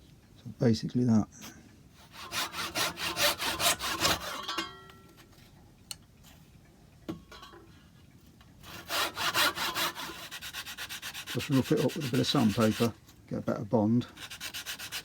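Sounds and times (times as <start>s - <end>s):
hand saw cutting wood: 2.0s - 4.5s, 8.6s - 13.0s, 14.1s - 15.0s.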